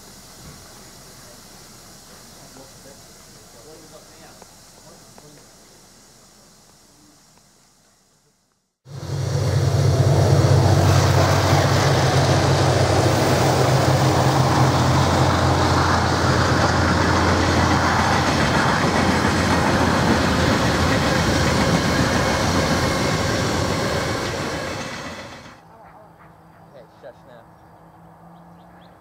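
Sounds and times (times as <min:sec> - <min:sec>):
steam hissing: 0:00.0 - 0:25.6
low hum: 0:08.9 - 0:25.6.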